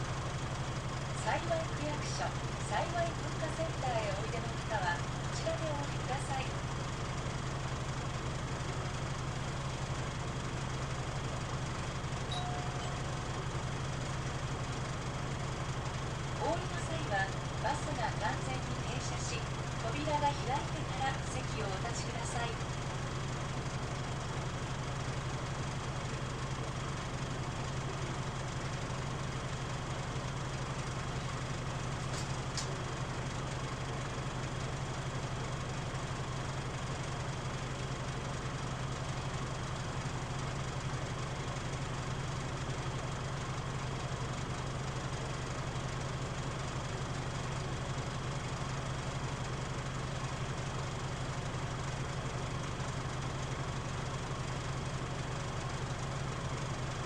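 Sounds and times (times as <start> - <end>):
cabin vibrating and droning: 0.0 - 7.2, 12.1 - 39.2
bus diesel engine idling: 0.0 - 57.0.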